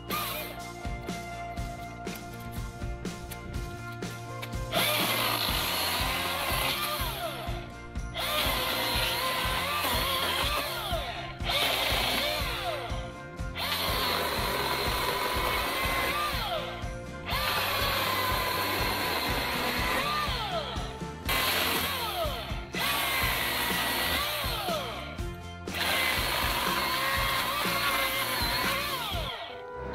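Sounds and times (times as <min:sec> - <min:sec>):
chainsaw cutting wood: 0:00.0 - 0:01.0, 0:04.4 - 0:29.6
background music: 0:00.0 - 0:29.9.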